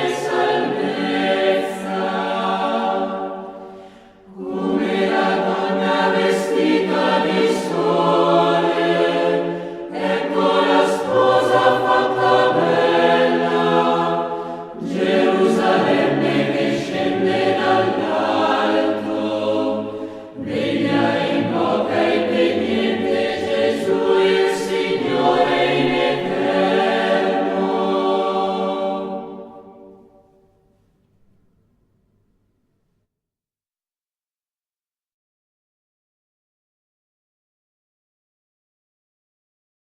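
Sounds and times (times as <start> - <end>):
choir singing slow chords: 0.0 - 31.8.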